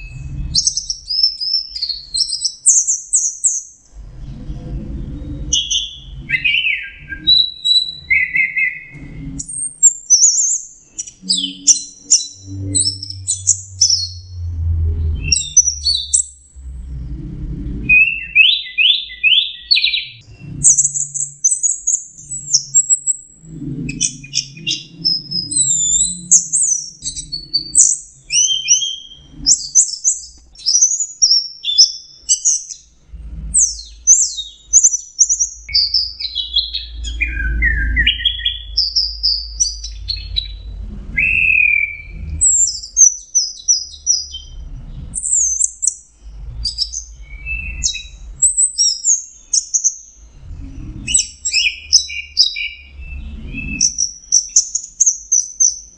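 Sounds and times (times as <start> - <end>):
thrush singing whistled phrases: 5.4 - 14.4, 17.9 - 23.3, 23.9 - 32.8, 41.2 - 44.6.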